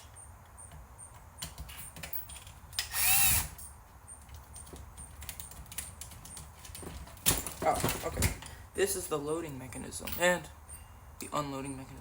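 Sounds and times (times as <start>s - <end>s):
power screwdriver motor whirring: 2.8s - 3.6s.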